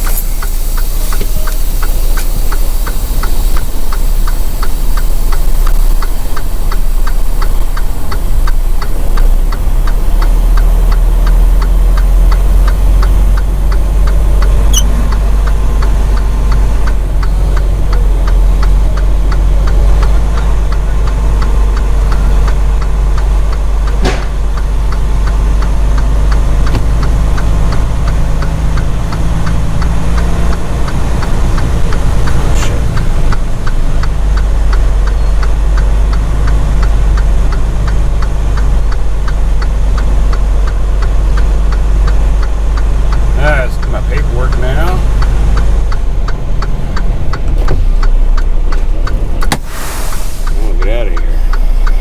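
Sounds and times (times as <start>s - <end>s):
light regular ticking: 0.0s - 49.5s, 50.4s - 52.0s
diesel truck engine rumbling: 0.0s - 52.0s
sharp click: 23.5s - 34.5s.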